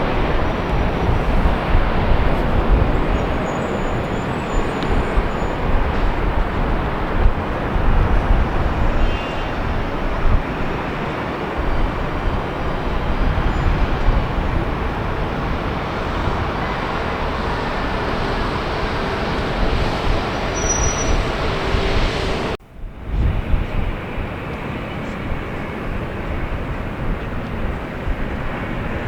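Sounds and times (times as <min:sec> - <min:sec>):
wind buffeting microphone: 0:00.0 - 0:29.0
loud engine roar: 0:14.3 - 0:22.6.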